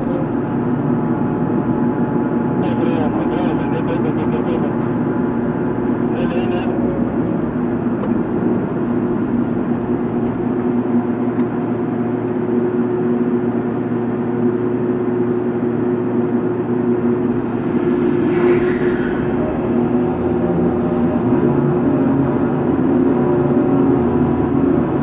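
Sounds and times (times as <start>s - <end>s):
diesel machinery running: 17.0s - 22.8s
loud hissing noise: 17.2s - 20.7s.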